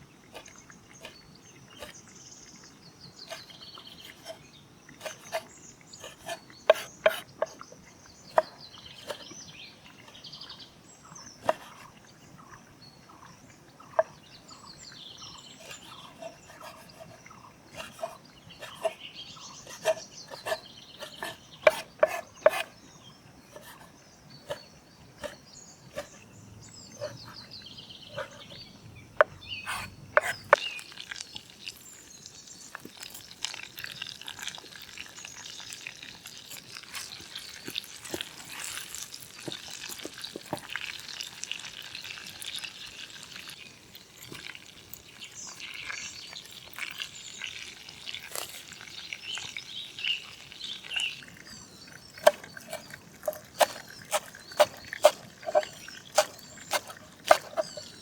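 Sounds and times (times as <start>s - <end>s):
birds singing: 0.0s - 58.0s
sharp taps and knocks: 21.1s - 22.7s.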